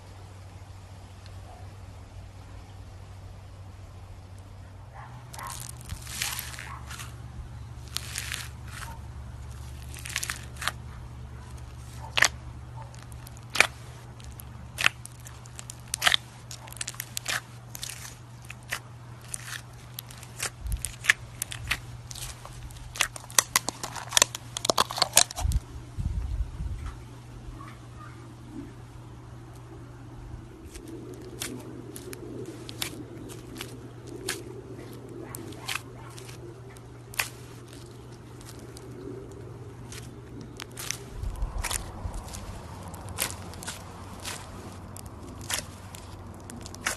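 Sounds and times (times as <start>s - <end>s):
slime crackling and popping: 5.3s - 25.6s, 30.6s - 46.9s.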